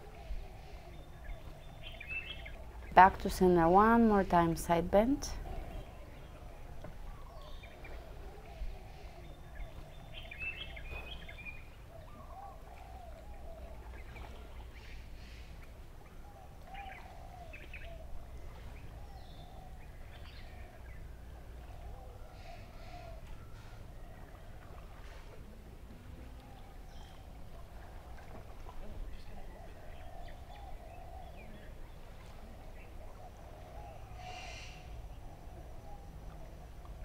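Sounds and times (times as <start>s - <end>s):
birds chirping: 0.0s - 23.6s.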